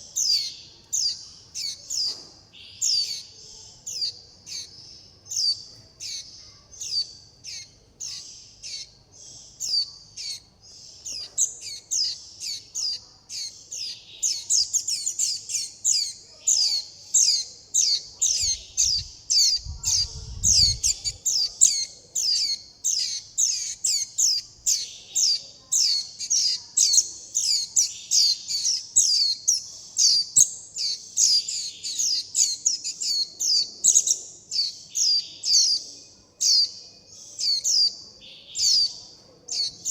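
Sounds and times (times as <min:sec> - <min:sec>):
bird chicks begging calls: 0:00.0 - 0:39.9.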